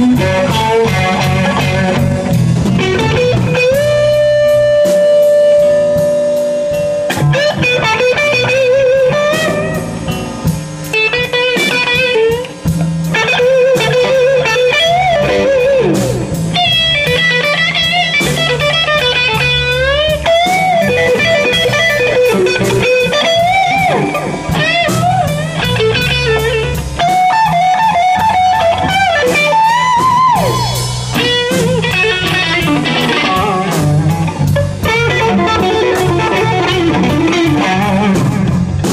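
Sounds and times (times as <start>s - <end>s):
bass line: 0.0s - 38.9s
drum kit: 0.0s - 38.9s
electric guitar solo: 0.0s - 38.9s.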